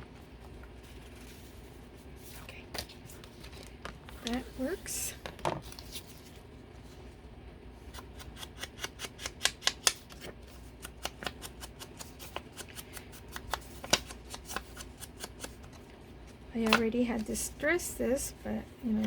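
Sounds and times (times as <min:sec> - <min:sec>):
scissors snipping paper: 0:07.9 - 0:15.6.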